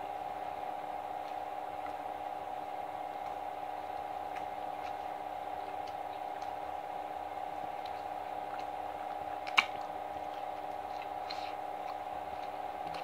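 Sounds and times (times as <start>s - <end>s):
steady background hum: 0.0s - 13.0s
wet chewing mouth sounds: 7.8s - 13.0s.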